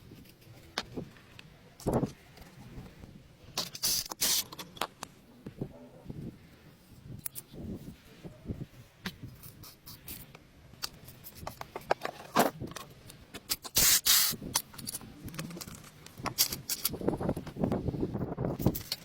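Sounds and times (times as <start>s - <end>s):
metal parts and tools clicking: 9.4s - 17.5s, 18.6s - 19.0s
burst of hiss: 13.8s - 14.4s.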